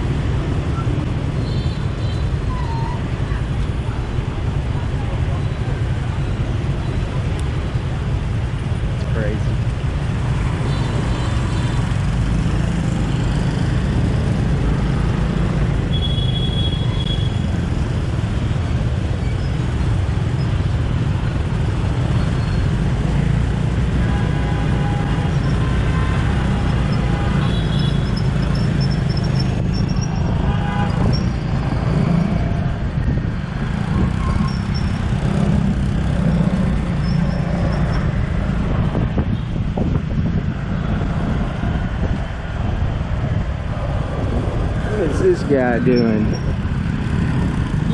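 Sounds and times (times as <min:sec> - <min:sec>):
engines rumbling: 0:00.0 - 0:47.9
horns beeping: 0:24.0 - 0:31.7
wind on microphone: 0:29.5 - 0:36.9, 0:37.5 - 0:47.9.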